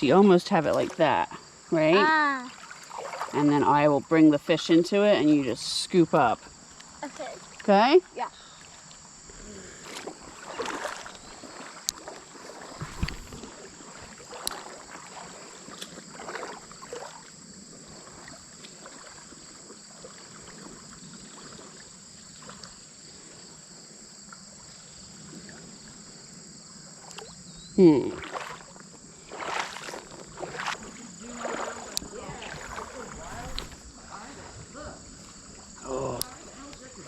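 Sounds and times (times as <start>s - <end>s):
water splashing around wading person: 0.0s - 1.3s, 2.2s - 3.9s, 7.0s - 22.9s, 27.9s - 37.0s
insects buzzing: 0.0s - 37.0s.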